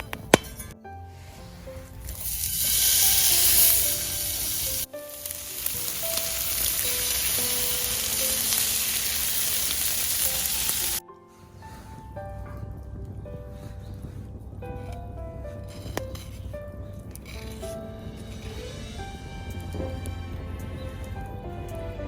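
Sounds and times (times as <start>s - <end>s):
meat sizzling in a pan: 2.2s - 11.0s.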